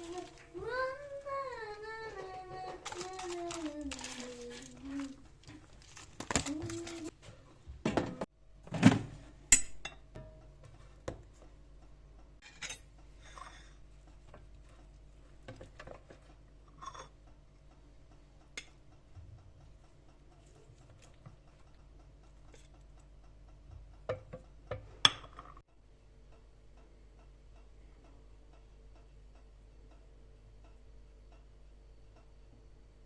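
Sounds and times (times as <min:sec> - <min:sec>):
faint steady hum: 0:00.0 - 0:33.0
kitchen utensils and dishes clinking: 0:12.4 - 0:13.8.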